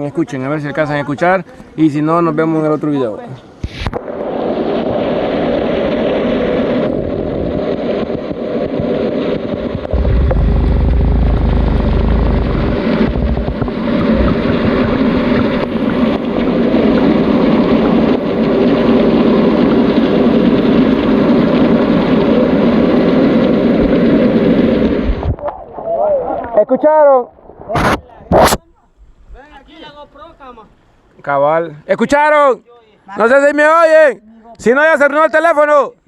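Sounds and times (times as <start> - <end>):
underwater river rumble: 3.9 - 26.4.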